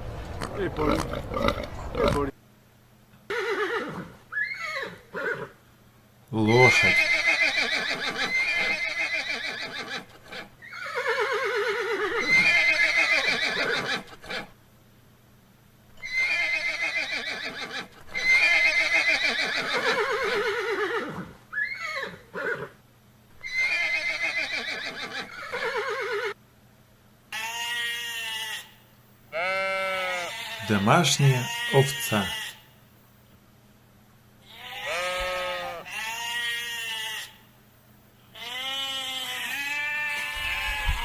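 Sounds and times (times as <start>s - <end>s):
horse whinnying: 3.3s - 5.6s, 6.5s - 14.5s, 16.0s - 22.8s, 23.4s - 26.4s, 39.4s - 41.0s.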